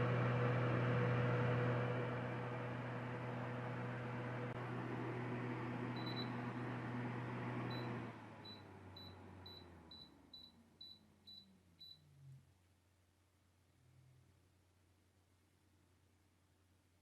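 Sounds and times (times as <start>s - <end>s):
table fan whoosh and motor hum: 0.0s - 8.4s.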